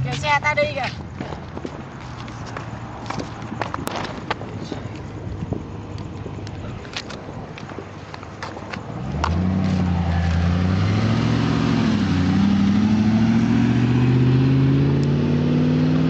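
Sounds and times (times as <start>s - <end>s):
car engine accelerating: 8.8s - 16.0s.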